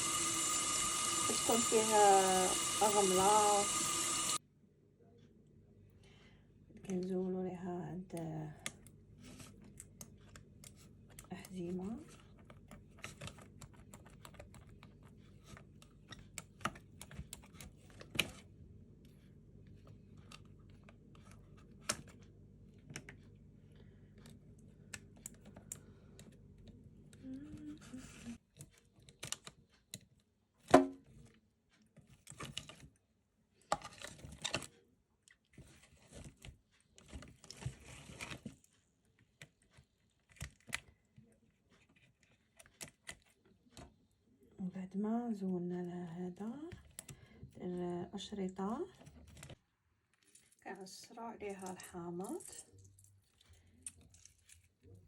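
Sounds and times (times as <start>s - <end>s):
faint steady hum: 0.0s - 4.4s.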